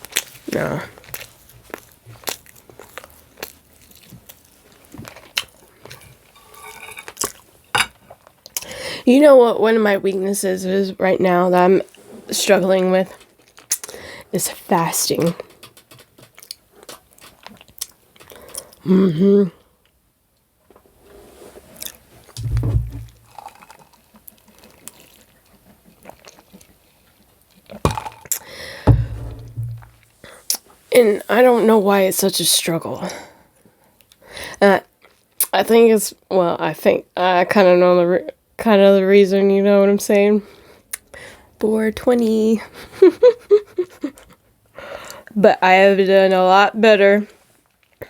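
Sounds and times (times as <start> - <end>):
person chewing steak: 0.0 - 8.7, 15.5 - 18.8, 23.1 - 29.8
low thump: 22.4 - 23.2, 28.9 - 30.0.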